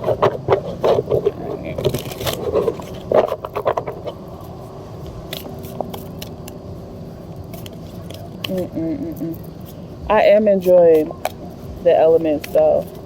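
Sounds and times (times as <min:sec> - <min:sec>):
low background hum: 0:00.0 - 0:13.0
cards being shuffled: 0:07.3 - 0:09.8, 0:10.6 - 0:13.0.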